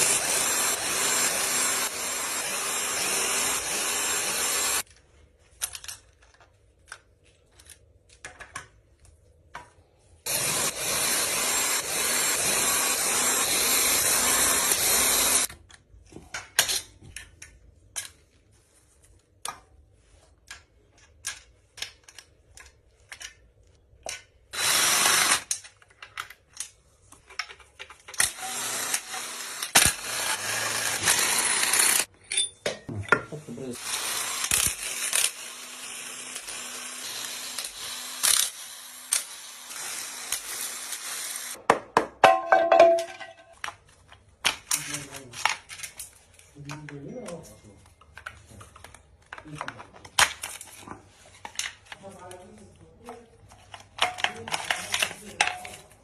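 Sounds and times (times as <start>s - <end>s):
power tool running: 0.0s - 4.9s, 10.3s - 15.5s, 24.6s - 25.5s, 28.2s - 32.1s, 33.8s - 41.6s.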